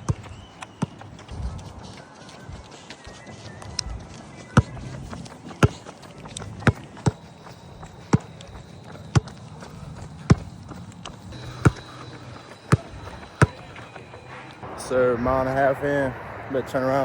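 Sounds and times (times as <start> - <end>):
running footfalls thudding: 0.0 - 14.2
faint high tone: 11.3 - 16.9.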